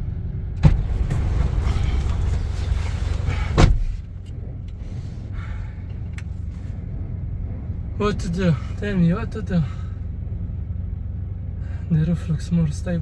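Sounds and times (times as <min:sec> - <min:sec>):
wind buffeting a car: 0:00.0 - 0:11.6
thump: 0:00.6 - 0:04.1.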